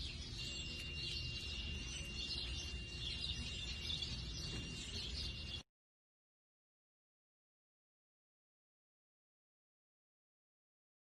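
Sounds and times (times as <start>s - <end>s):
thin high-pitched tone: 0.0s - 5.6s
bird chirps: 0.0s - 5.7s.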